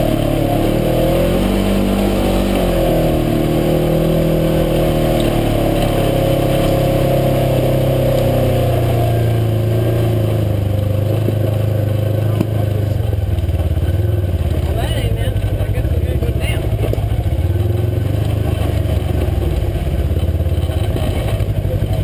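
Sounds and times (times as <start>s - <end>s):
utility vehicle engine running: 0.0s - 22.0s.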